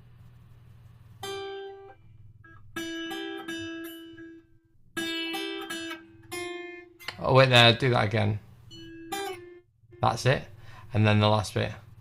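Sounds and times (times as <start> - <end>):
slide guitar notes: 1.2 - 10.8.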